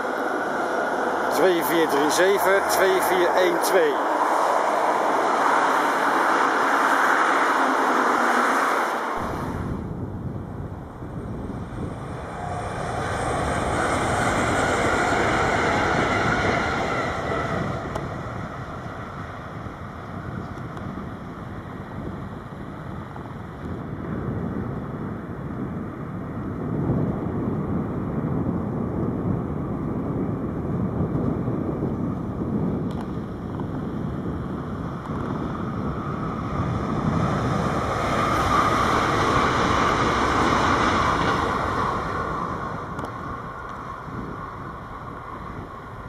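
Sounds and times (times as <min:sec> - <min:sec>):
train rushing hiss: 0:00.0 - 0:09.8, 0:11.7 - 0:19.2
train wheels rumbling on rails: 0:00.0 - 0:46.0.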